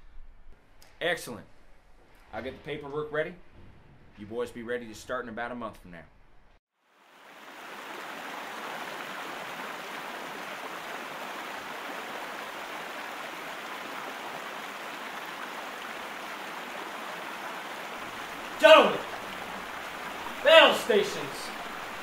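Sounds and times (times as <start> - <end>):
rushing water: 6.8 - 22.0.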